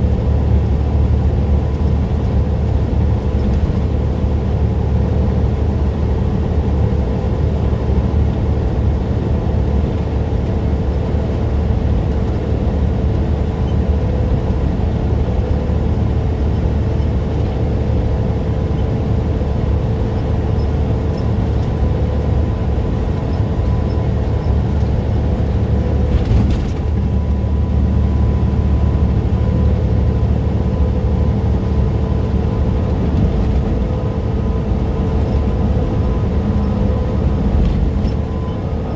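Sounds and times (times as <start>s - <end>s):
truck engine and road noise: 0.0s - 38.9s.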